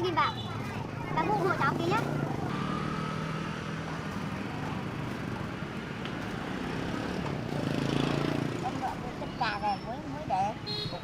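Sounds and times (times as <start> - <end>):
vehicle engine humming: 0.7 - 9.1.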